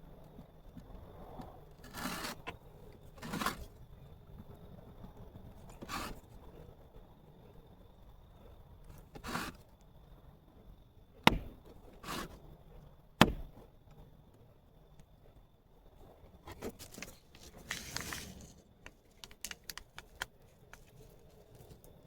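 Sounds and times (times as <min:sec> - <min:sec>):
sharp knocks: 0:11.2 - 0:12.2, 0:13.2 - 0:13.6
rustling: 0:16.4 - 0:22.0.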